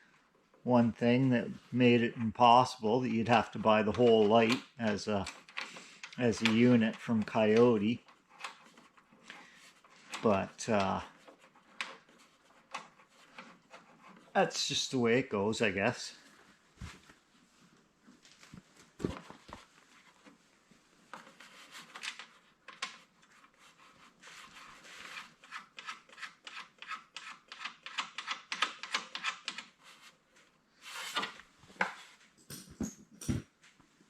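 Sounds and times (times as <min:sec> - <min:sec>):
handling knocks and clicks: 0:31.8 - 0:33.7.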